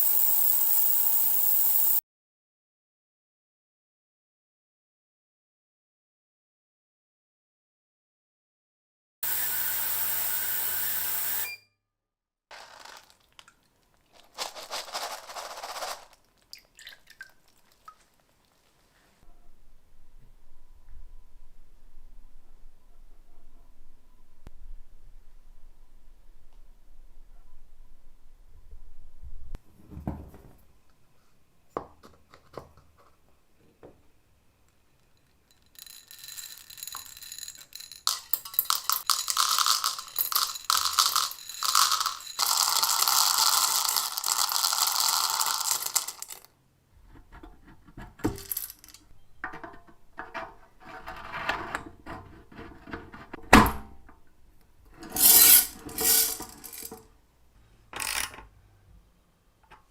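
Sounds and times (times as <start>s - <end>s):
clicks and clattering: 35.0s - 44.0s, 47.1s - 53.4s, 55.0s - 57.0s
metallic rattling and scraping: 54.9s - 57.0s.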